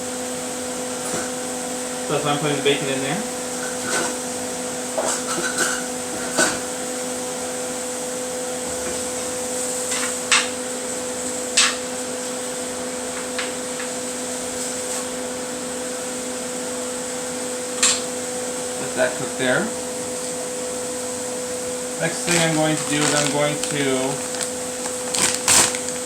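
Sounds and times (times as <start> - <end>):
bacon sizzling in a frying pan: 9.1 - 26.0.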